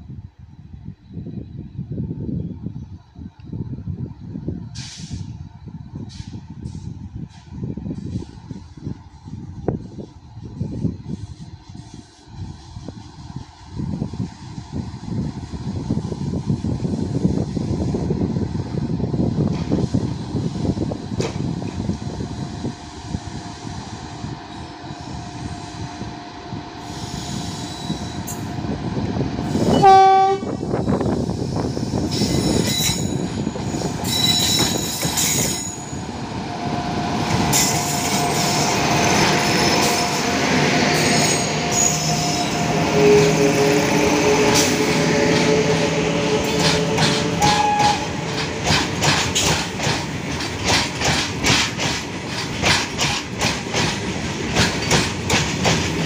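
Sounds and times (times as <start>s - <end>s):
electric locomotive whine: 0.0s - 56.0s
train horn blast: 29.5s - 30.8s, 39.6s - 48.3s.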